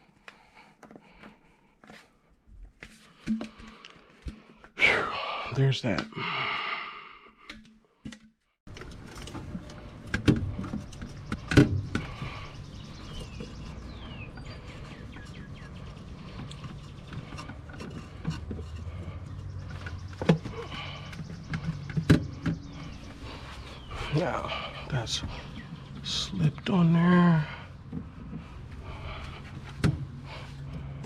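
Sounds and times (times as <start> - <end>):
engine parts knocking and clattering: 8.1 - 31.0.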